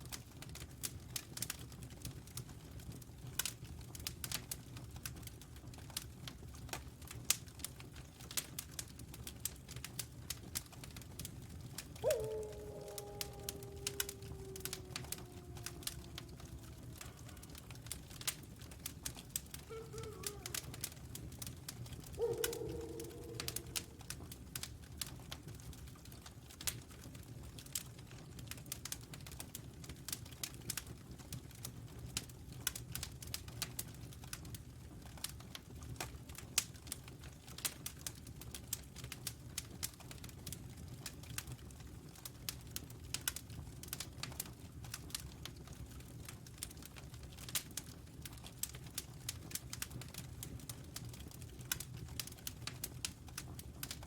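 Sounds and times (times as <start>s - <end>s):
crackling wood fire: 0.0s - 54.0s
wolves howling: 12.0s - 18.3s, 19.6s - 21.0s, 22.1s - 24.2s.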